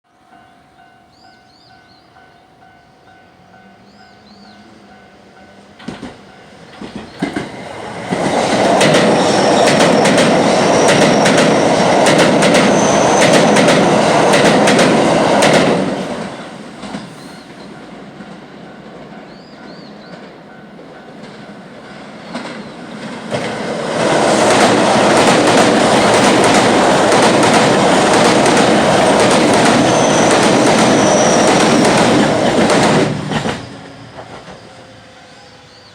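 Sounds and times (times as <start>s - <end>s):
crossing warning bell ringing: 0.2s - 6.7s
train rumble: 0.3s - 35.9s
wheels clacking over rail joints: 5.8s - 34.7s.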